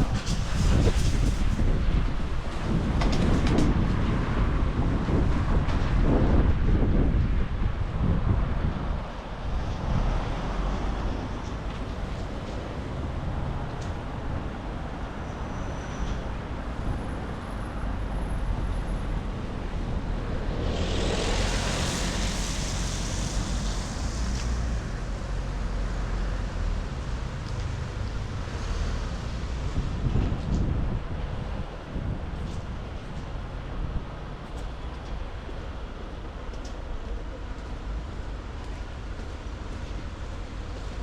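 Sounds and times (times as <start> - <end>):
car tyres hissing on wet road: 0.0 - 2.7, 18.0 - 30.1
street traffic: 0.0 - 41.0
wind rumbling on microphone: 0.0 - 41.0.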